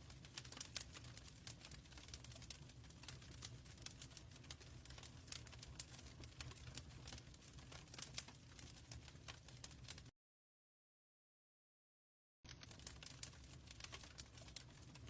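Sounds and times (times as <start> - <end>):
faint wood fire crackling: 0.0 - 10.1, 12.5 - 15.0.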